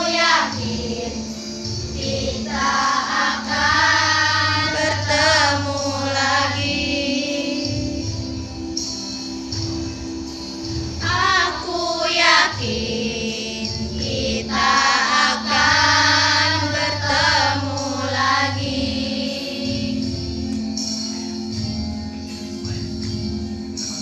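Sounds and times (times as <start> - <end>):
children's choir singing: 0.0 - 8.4, 11.0 - 20.5
musical accompaniment: 0.0 - 24.0.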